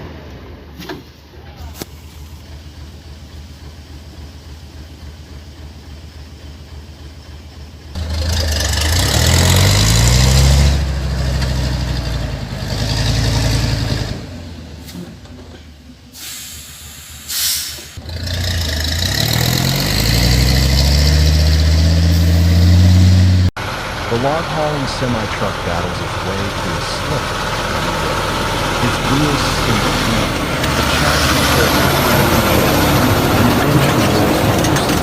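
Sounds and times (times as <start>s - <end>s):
truck diesel engine revving: 7.9s - 35.0s
air hiss: 16.2s - 18.0s.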